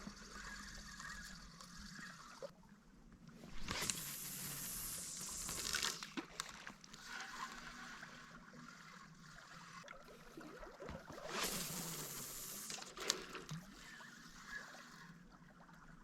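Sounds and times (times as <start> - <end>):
water sloshing and trickling: 0.0 - 4.0, 5.1 - 16.0
small clicks: 3.6 - 7.6, 11.3 - 13.8.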